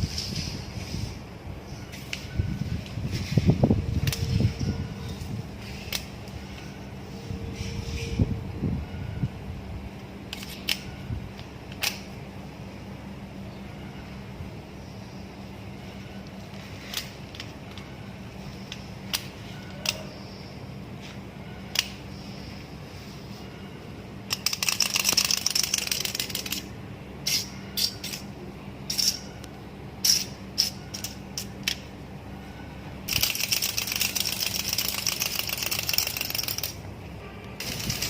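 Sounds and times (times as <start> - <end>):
steady low hum: 0.0 - 38.0
plastic toy clicking and rattling: 24.3 - 26.7, 33.1 - 36.8, 37.6 - 38.0.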